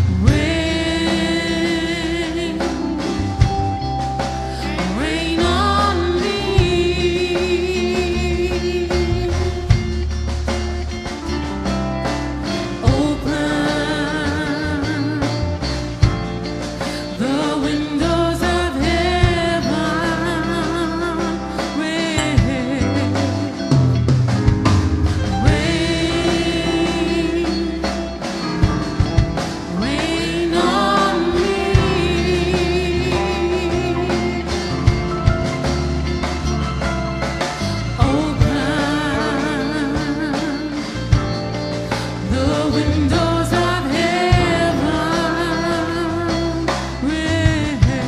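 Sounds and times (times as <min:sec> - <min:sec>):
woman singing with vibrato: 0:00.0 - 0:03.5, 0:04.6 - 0:10.0, 0:12.8 - 0:15.7, 0:16.9 - 0:23.7, 0:25.4 - 0:28.5, 0:29.6 - 0:35.1, 0:37.6 - 0:41.4, 0:42.1 - 0:48.0
band with bass and drums: 0:00.0 - 0:48.0.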